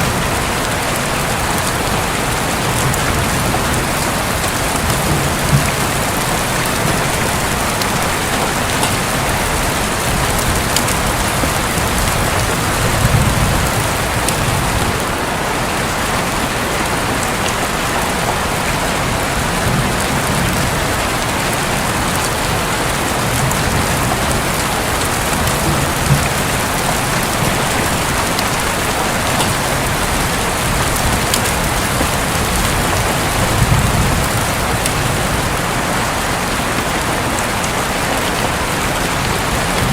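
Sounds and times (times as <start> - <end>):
heavy rain on a roof: 0.0 - 39.9
low rumbles of thunder: 1.6 - 15.1.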